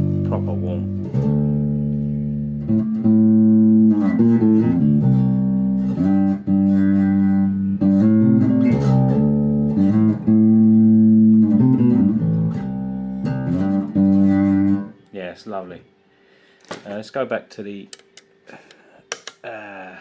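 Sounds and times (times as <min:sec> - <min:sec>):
electric bass notes: 0:00.0 - 0:15.4.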